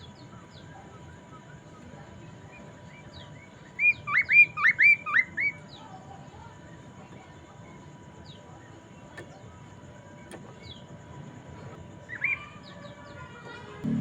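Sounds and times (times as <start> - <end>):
bird singing whistled notes: 3.2 - 5.6.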